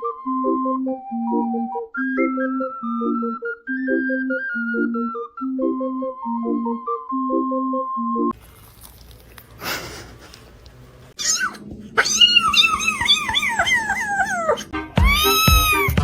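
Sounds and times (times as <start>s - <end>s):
background music: 0.0s - 8.4s, 14.0s - 16.0s
cat meowing: 11.2s - 16.0s
cat yowling: 11.2s - 16.0s.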